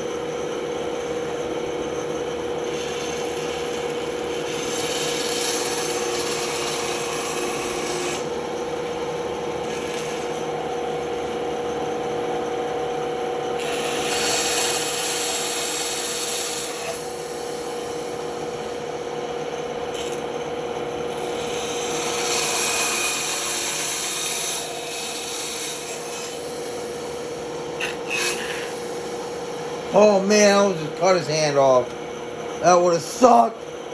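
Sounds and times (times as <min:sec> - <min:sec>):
band saw humming: 0:00.0 - 0:12.0, 0:13.4 - 0:33.9
saw blade cutting wood: 0:02.8 - 0:08.3, 0:13.6 - 0:17.3, 0:21.2 - 0:26.9, 0:27.7 - 0:31.8.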